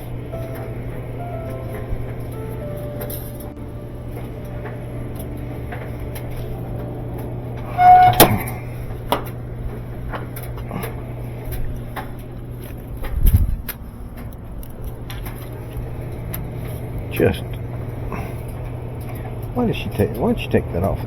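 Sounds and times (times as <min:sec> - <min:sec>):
steady low hum: 0:00.0 - 0:21.0
loud clatter with squeak: 0:07.7 - 0:08.5.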